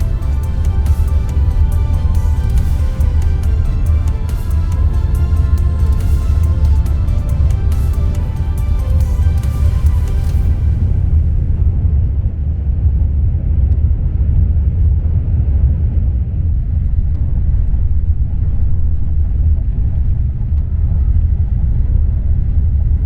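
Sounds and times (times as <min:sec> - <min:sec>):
moving train rumble: 0:00.0 - 0:13.6.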